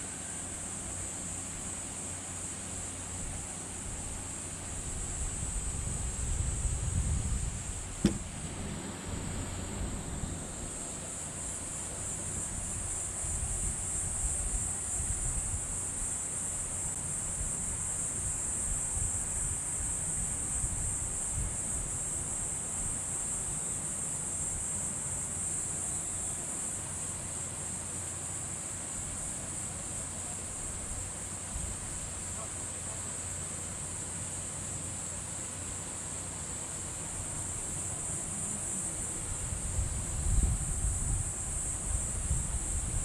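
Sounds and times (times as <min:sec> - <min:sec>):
high-pitched insect chorus: 0:00.0 - 0:43.0
wind rumble on microphone: 0:04.7 - 0:10.8, 0:12.4 - 0:16.1, 0:38.8 - 0:43.0.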